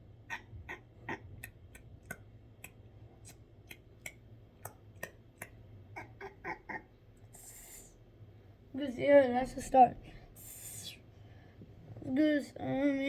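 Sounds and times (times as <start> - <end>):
person making mouth clicks: 0.3 - 6.8
person imitating bird chirps: 3.7 - 7.9.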